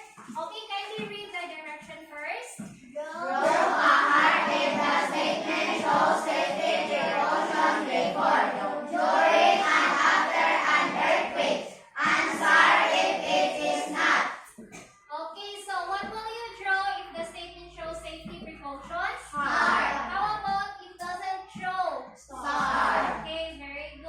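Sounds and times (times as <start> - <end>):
children singing: 3.0 - 14.8, 19.3 - 20.4, 22.3 - 23.3.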